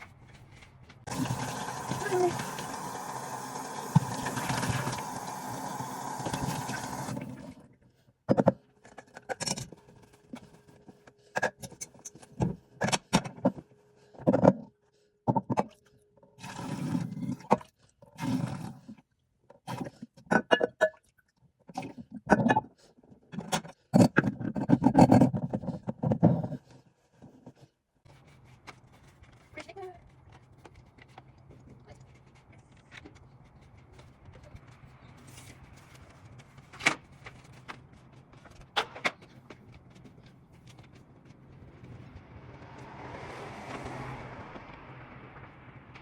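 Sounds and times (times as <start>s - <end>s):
water running: 1.1s - 7.6s.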